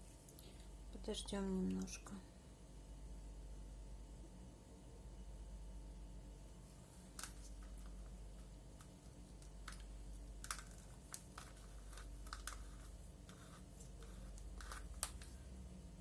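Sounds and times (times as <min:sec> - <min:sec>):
faint steady hum: 0:00.0 - 0:16.0
small tools clicking and tapping: 0:08.8 - 0:15.4.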